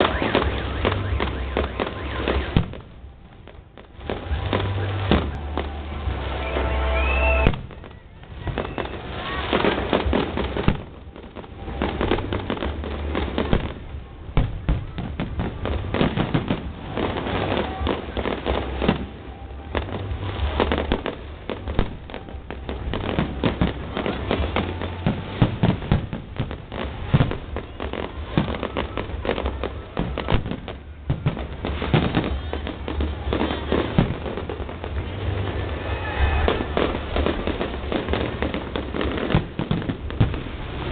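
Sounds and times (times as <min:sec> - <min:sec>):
firework whistle: 0:00.0 - 0:13.8, 0:14.4 - 0:40.9
fireworks bangs and crackling: 0:00.0 - 0:40.9.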